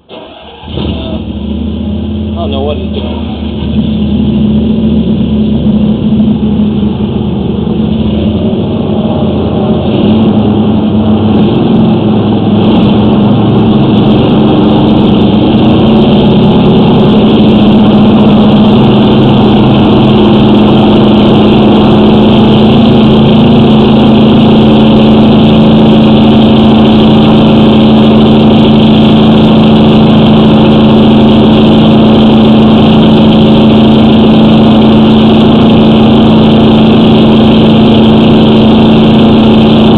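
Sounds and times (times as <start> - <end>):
engine droning: 0.0 - 39.9.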